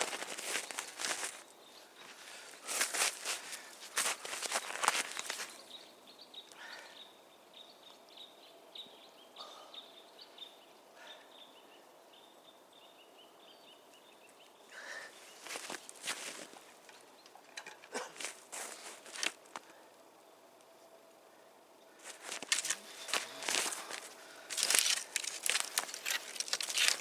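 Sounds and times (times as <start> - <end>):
footsteps: 0.0 - 1.4, 2.0 - 5.6, 15.4 - 16.7, 18.0 - 19.6, 22.0 - 27.0.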